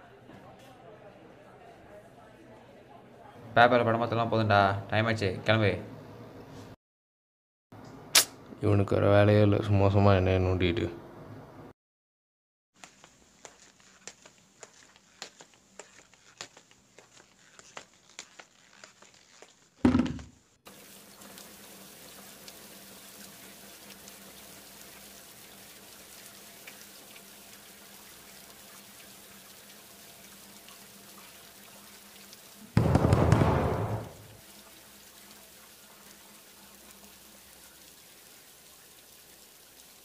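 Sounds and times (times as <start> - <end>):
light footsteps: 12.8 - 20.0
water running in tiled bathroom: 12.8 - 40.0
hand banging on door: 32.8 - 34.2
heavy thud: 32.8 - 34.3.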